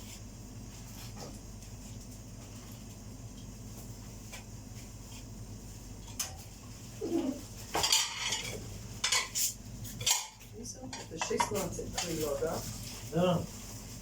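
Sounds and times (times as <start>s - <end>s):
steady low hum: 0.0s - 14.0s
dishes and cutlery clattering: 7.7s - 12.2s.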